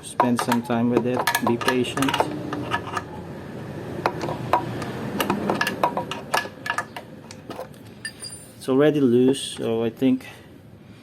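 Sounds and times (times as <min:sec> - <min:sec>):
wrench clicking on metal bolt: 0:00.0 - 0:03.1.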